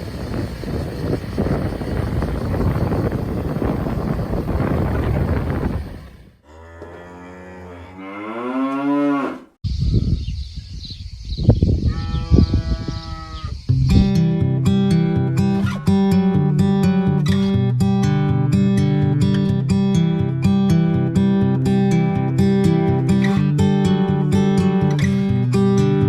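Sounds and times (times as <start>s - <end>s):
wind on microphone: 0.0s - 6.4s, 9.6s - 14.3s
cow mooing: 6.4s - 9.5s, 11.9s - 13.5s.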